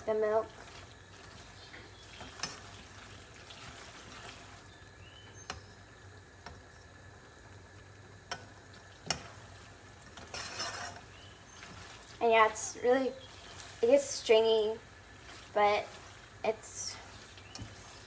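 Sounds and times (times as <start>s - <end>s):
spoon stirring sauce in a pot: 8.2s - 12.2s, 14.8s - 18.0s.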